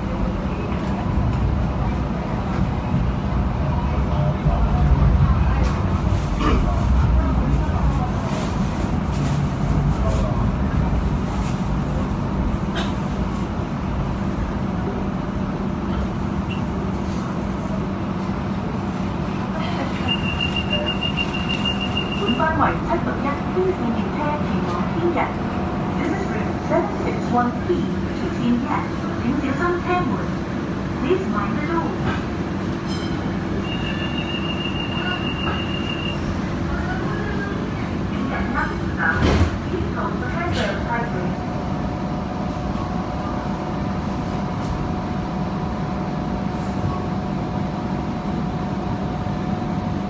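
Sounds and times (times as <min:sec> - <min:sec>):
light rail car rumbling: 0:00.0 - 0:50.0
wheels squealing on rails: 0:19.8 - 0:22.6, 0:32.9 - 0:36.4.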